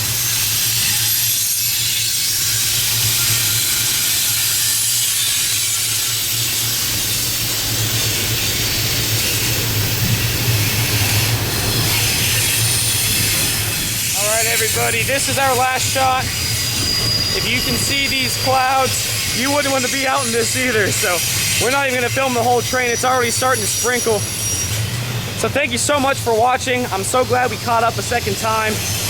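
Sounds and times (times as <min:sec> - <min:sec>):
freight train rolling past: 0:00.0 - 0:29.0.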